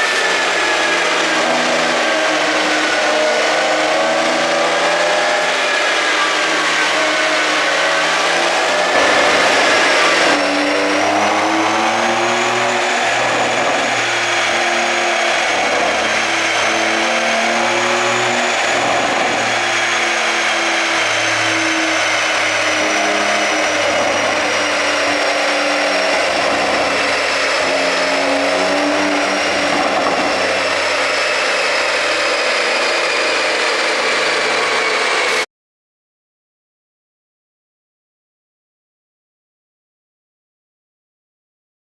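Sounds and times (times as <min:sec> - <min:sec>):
car engine revving: 0:00.0 - 0:35.5
steady high whine: 0:05.4 - 0:35.4.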